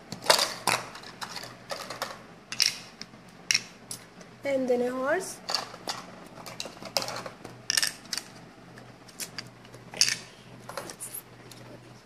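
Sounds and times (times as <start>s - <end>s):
small hard objects clicking: 0.2s - 2.8s, 5.5s - 8.3s.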